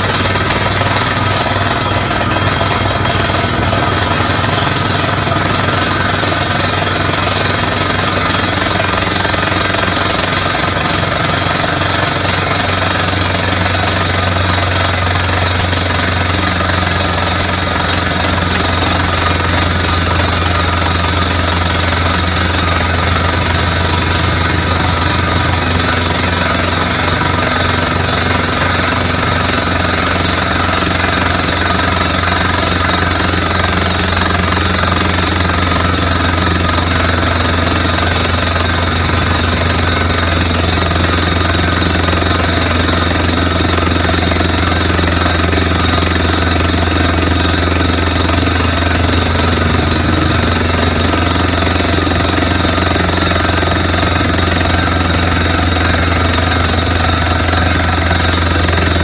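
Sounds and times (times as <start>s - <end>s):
engine and compressor drone: 0.0s - 59.0s
rapid pneumatic hammering: 0.0s - 59.0s.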